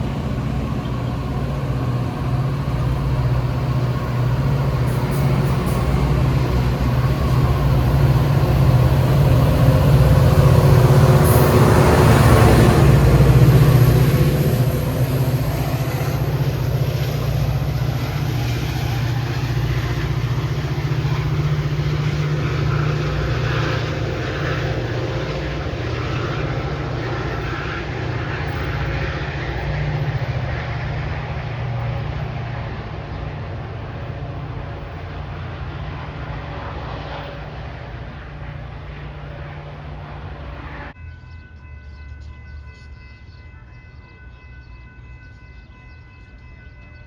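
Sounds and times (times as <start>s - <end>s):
diesel train engine rumble: 0.0s - 47.0s.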